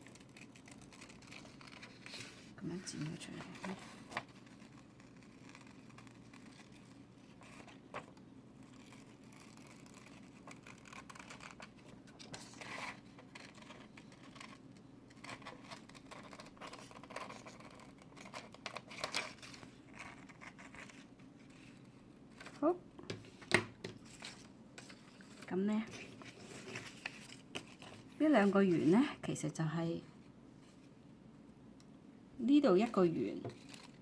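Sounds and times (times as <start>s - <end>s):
scissors snipping paper: 0.0s - 2.0s, 8.7s - 11.7s.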